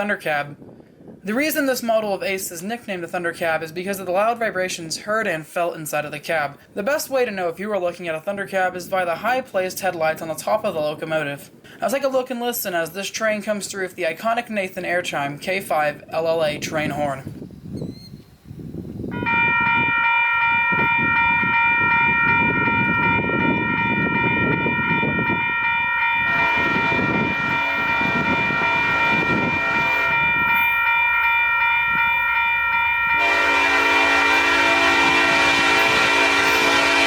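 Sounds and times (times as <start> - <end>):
passing train rumble: 18.8 - 37.0
locomotive air horn chord: 19.1 - 37.0.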